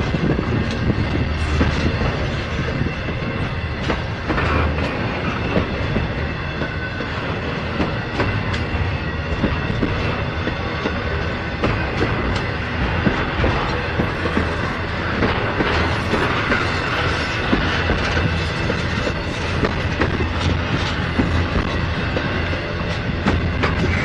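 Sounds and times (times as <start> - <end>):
freight train rumble: 0.0 - 24.0
wheels clicking over rail joints: 9.3 - 24.0.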